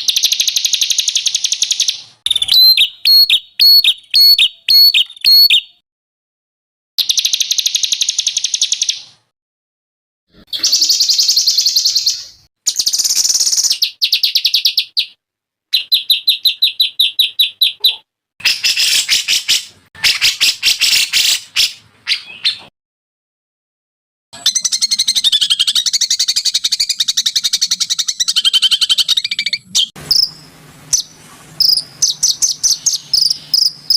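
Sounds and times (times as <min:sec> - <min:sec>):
songbird buzzy trills: 0:24.4 - 0:33.9.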